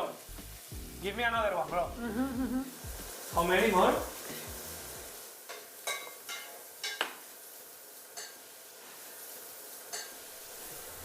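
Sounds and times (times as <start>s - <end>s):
faint steady hiss: 0.0s - 11.0s
utensils clinking against pan: 5.5s - 7.1s, 8.2s - 8.4s, 9.9s - 10.2s.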